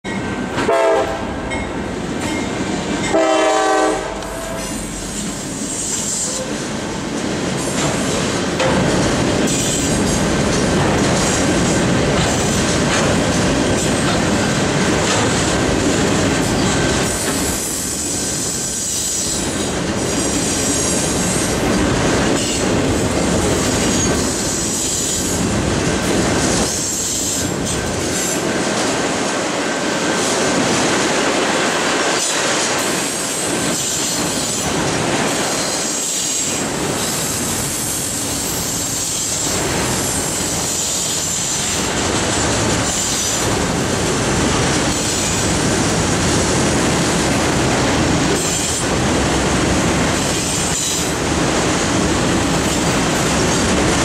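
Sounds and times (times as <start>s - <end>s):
train horn blasts: 0.6s - 1.3s, 3.1s - 4.9s
wheels squealing on rails: 4.4s - 6.6s, 16.4s - 21.6s, 23.5s - 25.5s, 26.6s - 28.5s, 33.0s - 43.6s, 50.2s - 51.2s
wheels clattering on rails: 5.1s - 17.6s.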